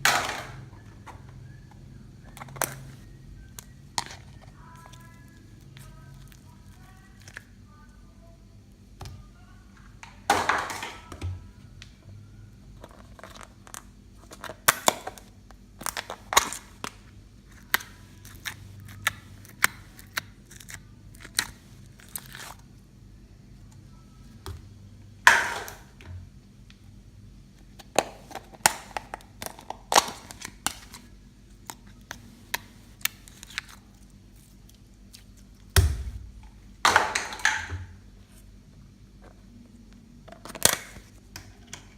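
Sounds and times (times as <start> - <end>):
slime crackling and popping: 17.6 - 22.6.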